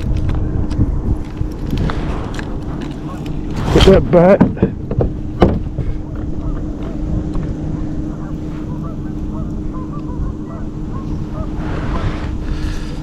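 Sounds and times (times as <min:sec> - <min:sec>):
steady low rumble: 0:00.0 - 0:13.0
distant waterfowl honking: 0:05.8 - 0:12.7.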